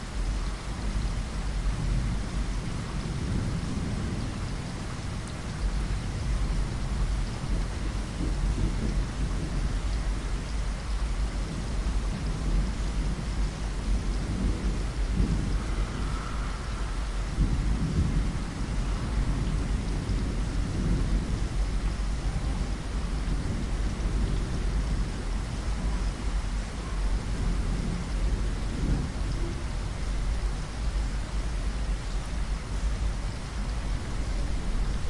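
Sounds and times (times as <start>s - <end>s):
rain against window glass: 0.0s - 35.0s
low rumble: 13.9s - 20.2s.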